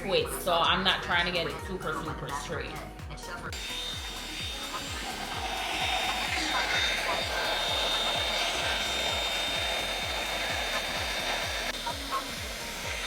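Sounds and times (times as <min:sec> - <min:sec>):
music beat with low thumps: 0:00.0 - 0:13.0
hair dryer blowing: 0:03.5 - 0:13.0.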